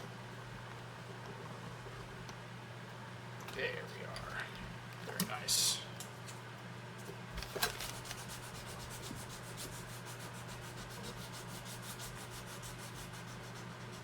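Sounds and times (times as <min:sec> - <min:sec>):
steady low hum: 0:00.0 - 0:14.0
rapid rubbing strokes: 0:08.0 - 0:14.0.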